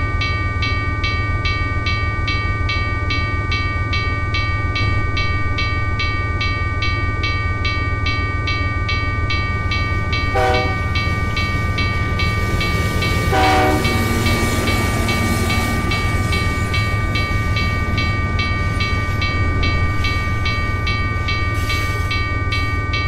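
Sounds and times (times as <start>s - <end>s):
regular high ticking: 1.4s - 23.0s
train rumbling past: 8.9s - 23.0s
train horn blast: 10.3s - 10.9s, 13.3s - 14.0s.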